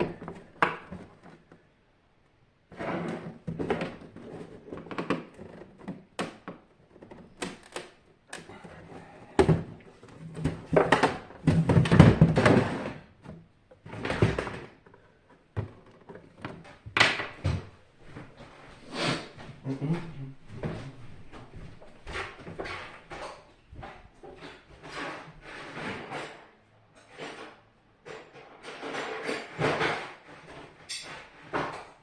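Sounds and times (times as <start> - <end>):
clunks and knocks of handled metal parts: 3.1 - 18.2, 25.8 - 32.0.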